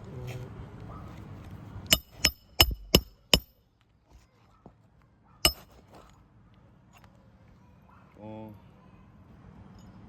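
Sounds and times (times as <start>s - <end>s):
hammer striking roofing nail: 1.9s - 3.6s, 5.5s - 5.7s.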